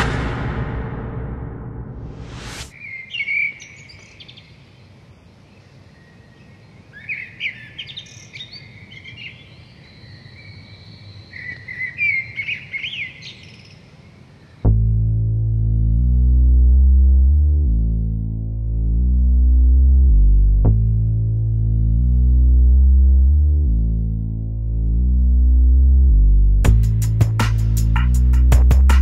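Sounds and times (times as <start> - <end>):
short rising swoosh: 0.0 - 2.7
synthesized whoosh: 0.0 - 2.7
faint outdoor background: 0.0 - 29.0
birds chirping and trilling: 2.7 - 14.6.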